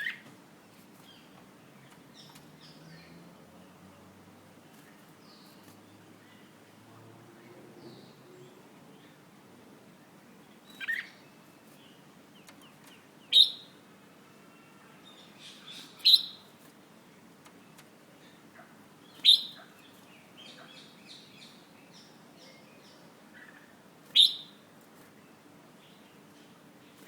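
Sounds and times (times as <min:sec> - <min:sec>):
bulbul chirps and sharp calls: 0:13.3 - 0:13.7, 0:15.5 - 0:16.4, 0:19.1 - 0:19.7.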